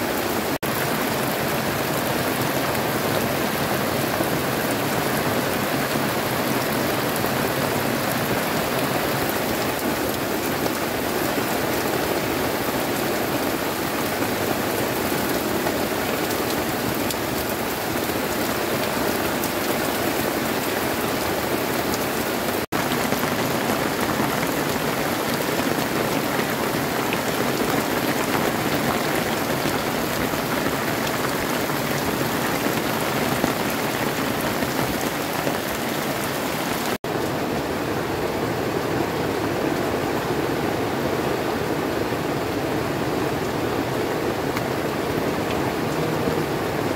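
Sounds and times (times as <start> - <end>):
heavy rain: 0.0 - 46.9.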